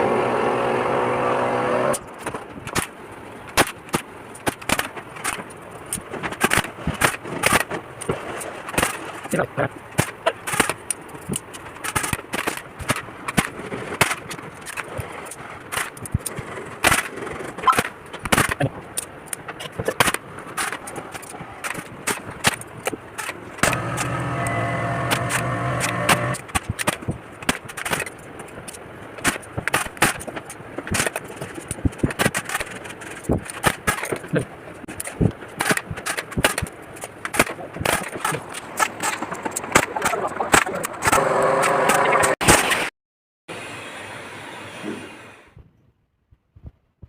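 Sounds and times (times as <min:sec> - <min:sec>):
sharp clicks and knocks: 0:01.9 - 0:42.8
small motor running: 0:23.6 - 0:26.4, 0:41.1 - 0:42.4.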